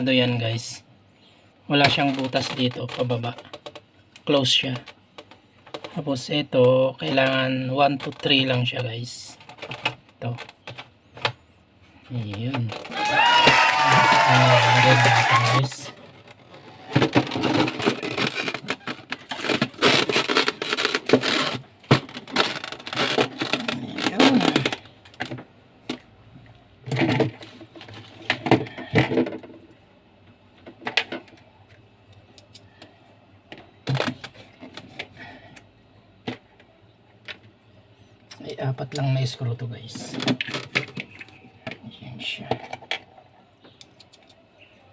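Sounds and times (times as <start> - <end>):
refrigerator parts clattering: 16.0 - 26.0, 26.8 - 29.7.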